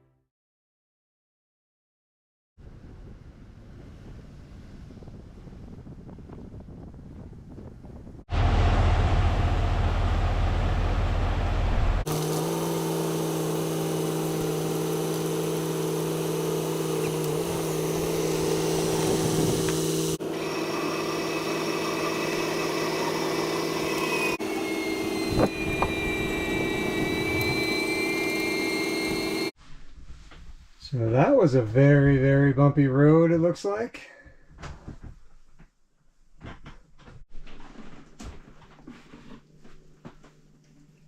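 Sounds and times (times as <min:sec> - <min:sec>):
steady motor hum: 0:09.2 - 0:29.5
higher tones rising and falling: 0:21.3 - 0:29.5.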